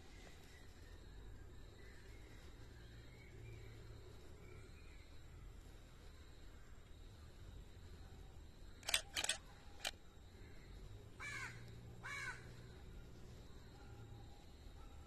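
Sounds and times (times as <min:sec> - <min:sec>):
sharp clicks: 0:08.8 - 0:10.0.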